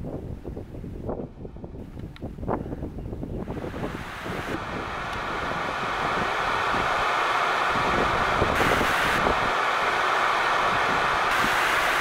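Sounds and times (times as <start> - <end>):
heavy rain falling: 3.6 - 12.0.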